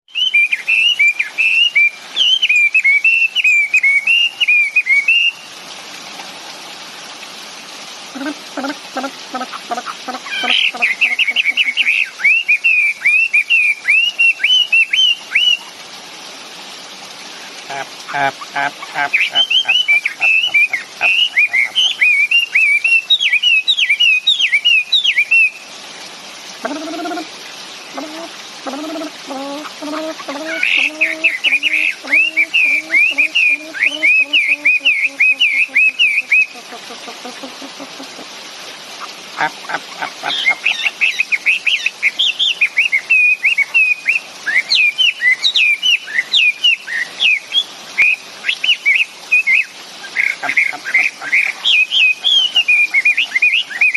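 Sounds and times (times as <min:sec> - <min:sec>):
songbird whistling song: 0:00.1 - 0:05.5, 0:10.3 - 0:15.7, 0:19.2 - 0:25.6, 0:30.5 - 0:36.6, 0:40.4 - 0:53.9.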